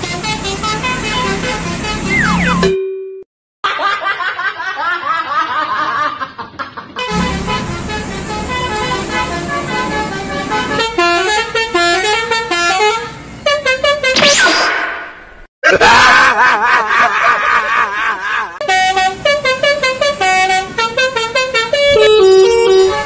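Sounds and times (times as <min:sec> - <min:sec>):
bus horn playing a melody: 0:00.0 - 0:02.7, 0:07.0 - 0:14.2, 0:18.6 - 0:23.0.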